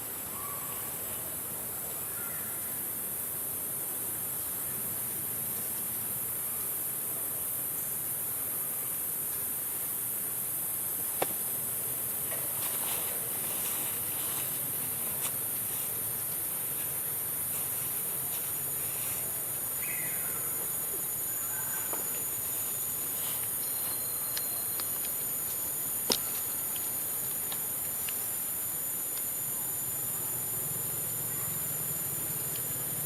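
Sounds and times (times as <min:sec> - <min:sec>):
steady high-pitched hiss: 0:00.0 - 0:33.0
faint chirps: 0:17.5 - 0:26.0.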